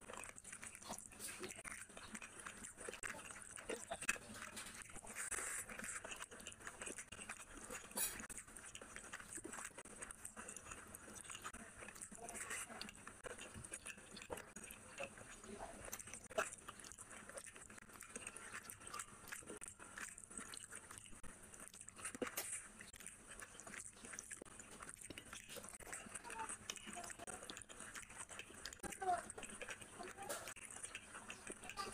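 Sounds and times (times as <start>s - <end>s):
chewing and wet mouth sounds: 0.0s - 31.9s.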